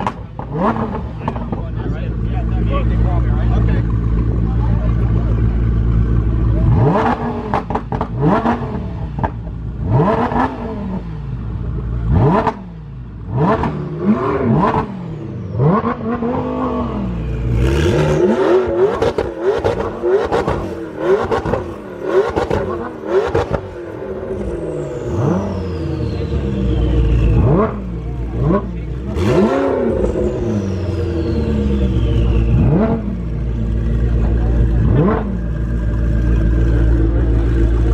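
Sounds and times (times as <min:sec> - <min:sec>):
exhaust cracks: 0:00.0 - 0:10.6
car engine revving: 0:00.0 - 0:37.9.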